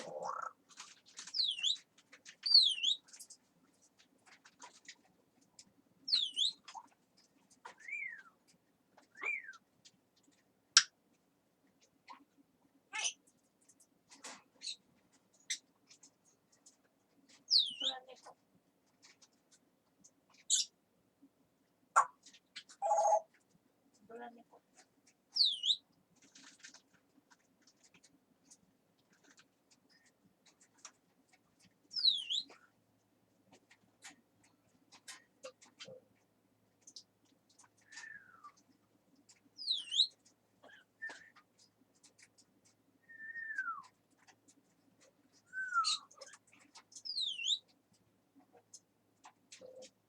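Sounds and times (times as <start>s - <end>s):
faint clicks and scratches: 0.0s - 50.0s
parrot whistled calls: 43.1s - 43.8s, 45.5s - 46.1s
parrot whistling: 45.5s - 46.1s.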